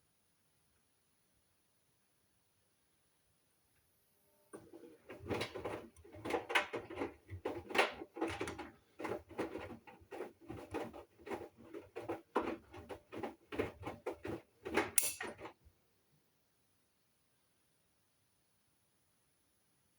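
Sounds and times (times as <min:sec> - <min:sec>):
laundry and water sloshing: 0:04.6 - 0:15.6
washing machine drum tumbling: 0:05.0 - 0:15.6.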